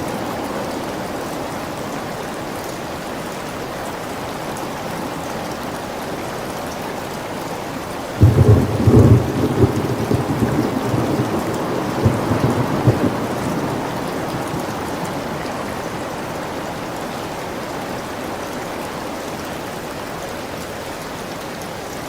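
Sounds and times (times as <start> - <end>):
steady rain falling: 0.0 - 22.0
deep rolling thunder: 8.2 - 15.4.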